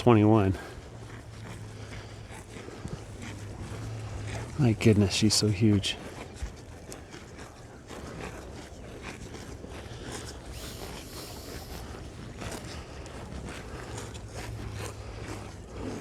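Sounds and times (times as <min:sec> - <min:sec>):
cows tearing grass: 0:00.0 - 0:16.0.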